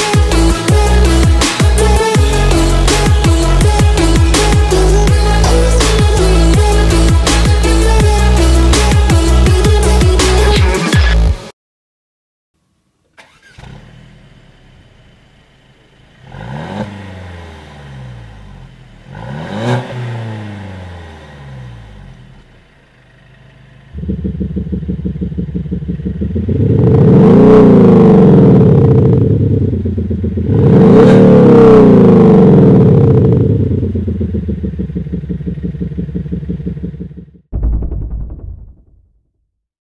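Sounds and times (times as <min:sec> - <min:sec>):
car engine revving: 0:13.2 - 0:37.4.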